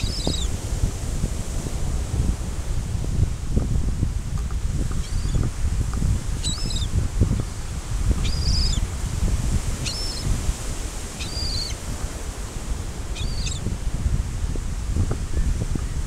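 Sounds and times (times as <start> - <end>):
surf rumble: 0.0 - 16.0
wind on microphone: 0.0 - 16.0
birds short high calls: 8.2 - 8.8, 9.8 - 10.2, 11.2 - 11.8, 13.2 - 13.6.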